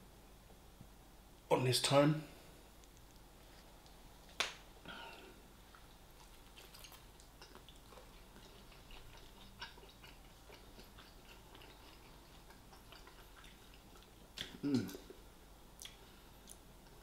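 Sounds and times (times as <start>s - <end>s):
person chewing food: 5.1s - 17.0s.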